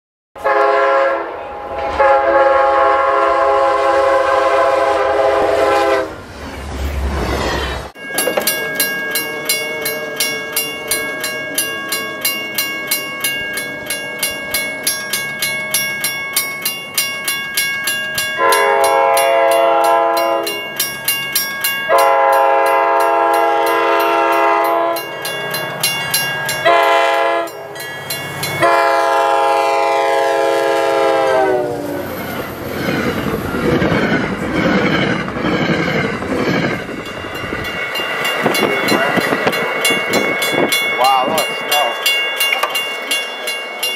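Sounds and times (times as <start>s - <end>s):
locomotive horn: 0.4s - 6.2s, 18.4s - 20.6s, 21.9s - 25.1s, 26.6s - 27.6s, 28.6s - 32.1s
train rushing by: 0.4s - 43.9s
crossing bell ringing: 7.9s - 34.9s, 35.9s - 43.9s.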